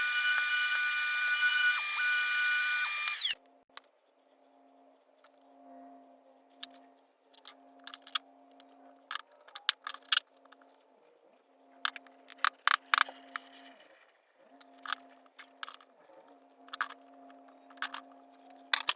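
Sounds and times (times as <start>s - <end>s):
workshop hum: 0.0s - 3.6s.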